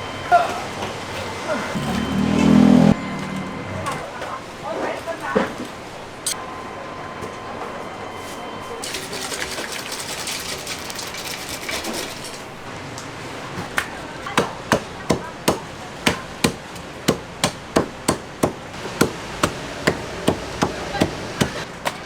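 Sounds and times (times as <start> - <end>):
knife chopping on cutting board: 14.4 - 21.6.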